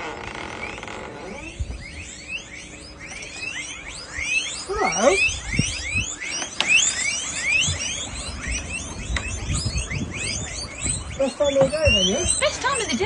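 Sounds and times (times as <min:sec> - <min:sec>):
low gliding call: 0:00.0 - 0:13.0
rodents squeaking: 0:00.1 - 0:13.0.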